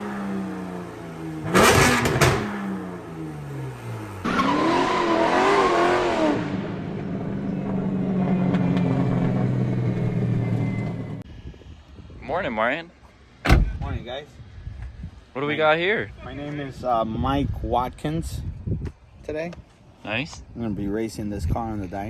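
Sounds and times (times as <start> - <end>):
race car engine: 0.0 - 11.2
loud sharp exhaust bangs: 1.4 - 3.0.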